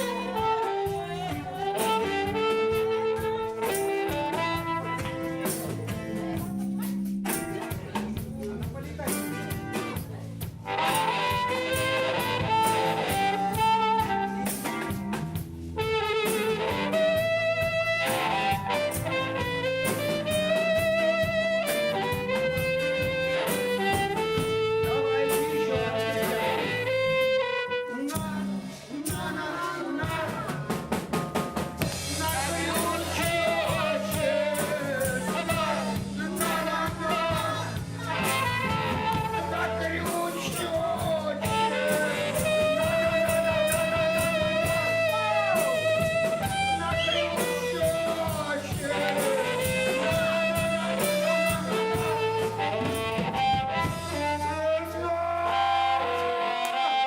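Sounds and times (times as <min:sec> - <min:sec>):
bass guitar: 0:00.0 - 0:57.0
drum kit: 0:00.0 - 0:57.0
live rock band playing: 0:00.0 - 0:57.0.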